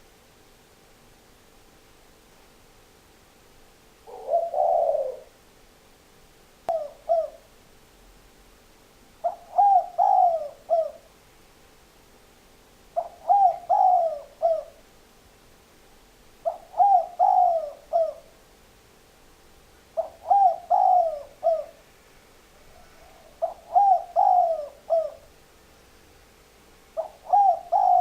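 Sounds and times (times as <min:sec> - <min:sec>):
dove cooing: 0:04.0 - 0:05.4, 0:06.7 - 0:07.5, 0:09.2 - 0:11.1, 0:13.0 - 0:14.8, 0:16.4 - 0:18.4, 0:19.9 - 0:21.9, 0:22.5 - 0:25.4, 0:26.9 - 0:28.0.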